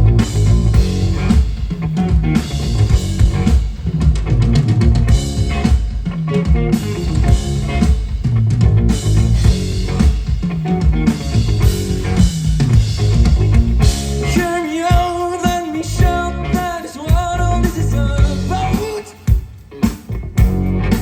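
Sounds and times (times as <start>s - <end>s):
loud bass: 0.0s - 14.6s, 15.8s - 18.8s, 20.1s - 21.0s
drum hits: 0.0s - 16.2s
live rock band playing: 0.0s - 21.0s.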